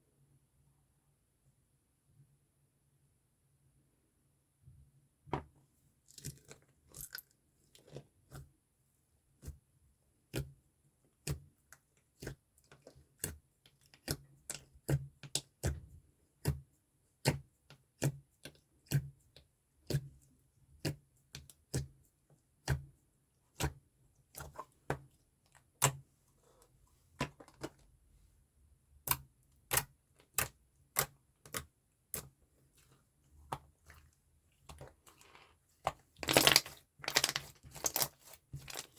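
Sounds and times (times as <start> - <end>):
slime crunching and popping: 36.2 - 38.9.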